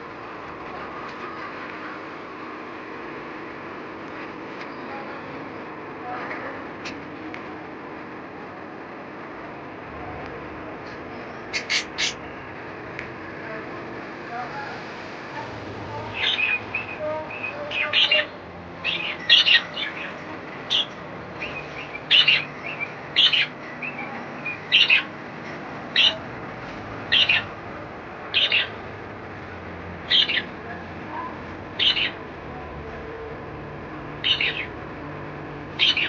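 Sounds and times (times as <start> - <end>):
pet birds chirping: 11.5 - 12.3, 16.0 - 25.2, 25.9 - 26.2, 27.0 - 27.6, 28.3 - 28.8, 30.1 - 30.5, 31.8 - 32.2, 34.2 - 34.7, 35.8 - 36.0.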